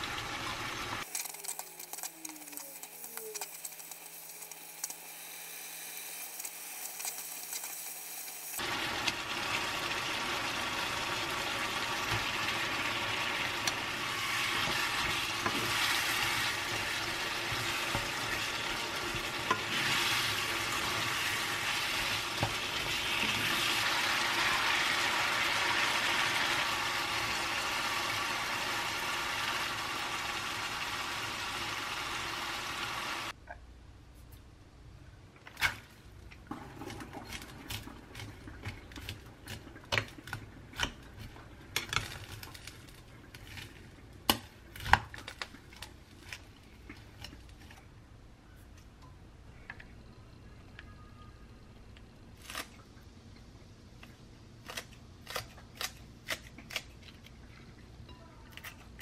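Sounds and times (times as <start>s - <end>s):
food sizzling in a frying pan: 0.0s - 33.4s.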